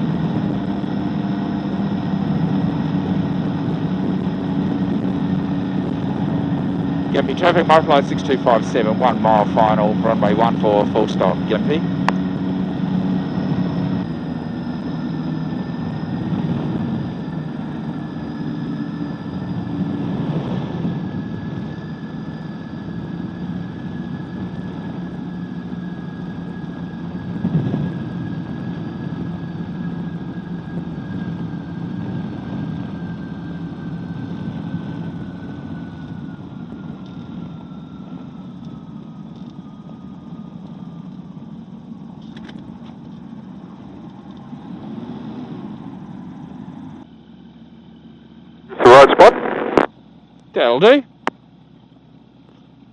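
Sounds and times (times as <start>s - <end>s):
aircraft engine and propeller droning: 0.0s - 52.9s
whine falling in pitch: 48.7s - 49.9s.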